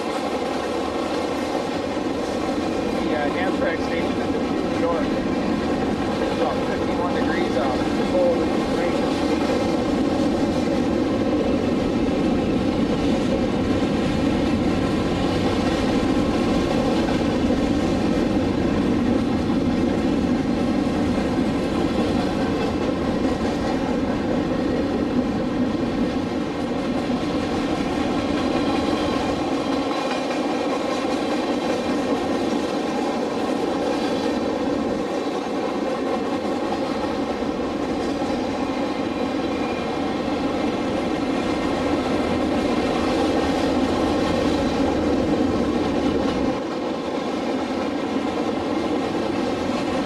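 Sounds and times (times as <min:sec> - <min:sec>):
freight train wheels on rails: 0:00.0 - 0:50.0.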